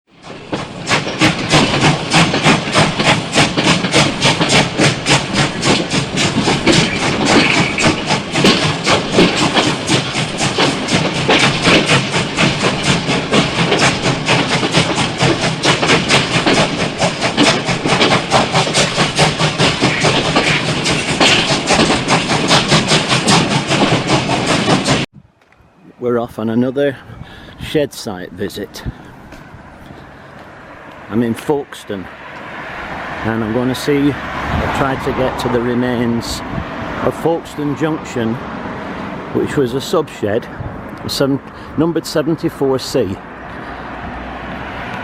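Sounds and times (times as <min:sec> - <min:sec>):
steam locomotive exhaust beats: 0:00.1 - 0:25.9, 0:26.8 - 0:45.0
steam hissing: 0:00.2 - 0:25.1.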